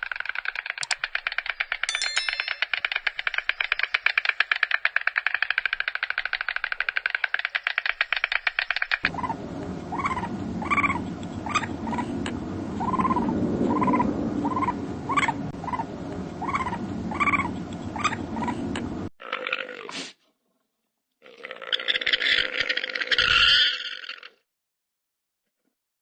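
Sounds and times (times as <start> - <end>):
fast pulsing rattle: 0.0 - 12.1, 12.8 - 15.8
poultry flock calling: 9.1 - 12.2, 12.8 - 18.7.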